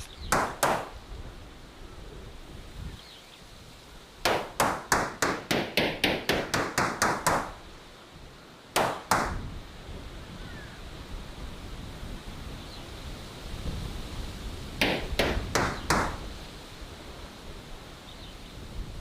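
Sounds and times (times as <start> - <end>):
sharp knocks on wood: 0.3 - 0.9, 4.2 - 7.6, 8.8 - 9.4, 14.8 - 16.2.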